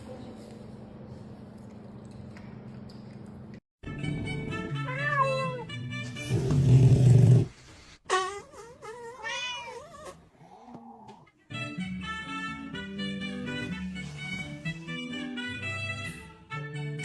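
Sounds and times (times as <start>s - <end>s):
cat yowling: 4.9s - 5.7s, 8.9s - 10.2s.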